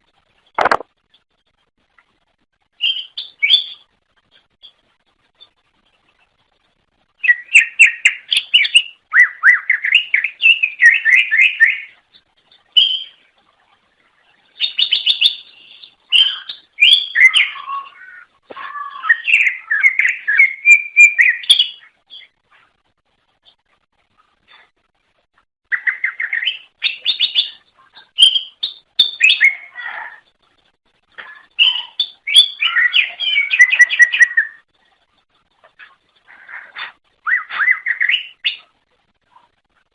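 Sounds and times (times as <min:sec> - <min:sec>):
bird singing chattering phrases: 0:31.3 - 0:34.6, 0:35.7 - 0:38.7.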